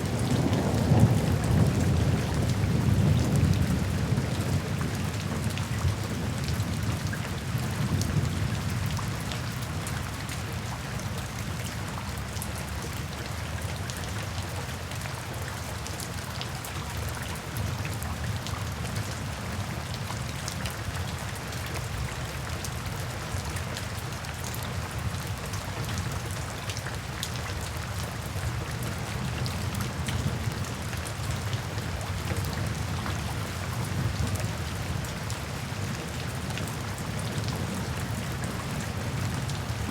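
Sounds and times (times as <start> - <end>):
low rumble of thunder: 0.0 - 9.8
raindrops pattering: 0.0 - 39.9
steady rain falling: 0.0 - 39.9.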